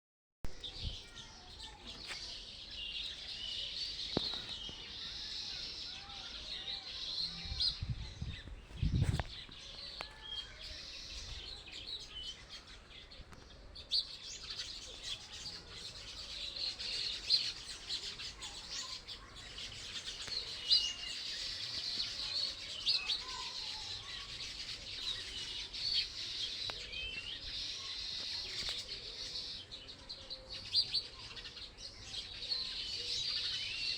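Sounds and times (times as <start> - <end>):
small birds chirping and twittering: 0.5 - 33.9.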